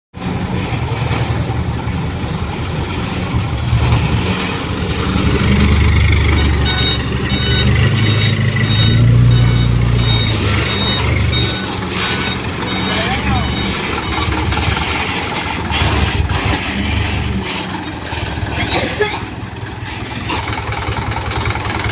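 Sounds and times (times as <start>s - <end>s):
diesel truck engine running: 0.2s - 21.9s
reversing alarm beeping: 5.5s - 15.2s.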